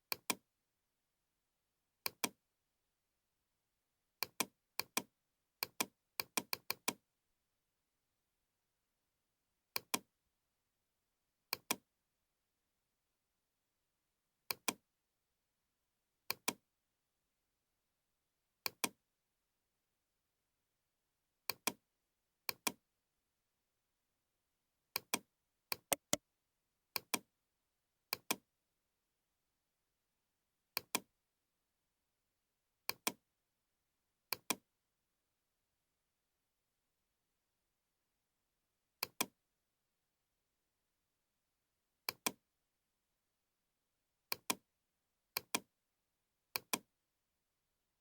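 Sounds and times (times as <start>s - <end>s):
computer mouse clicking: 25.9s - 26.2s.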